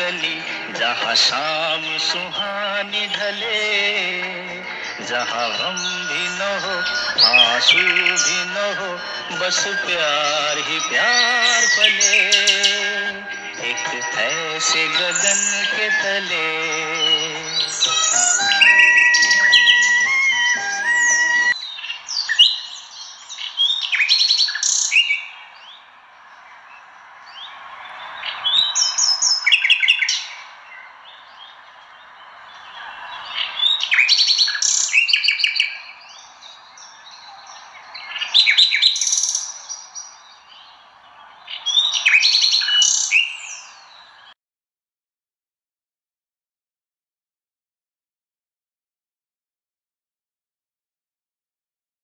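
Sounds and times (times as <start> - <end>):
bird chirping and trilling: 0.0 - 25.8, 27.4 - 30.9, 32.6 - 44.3.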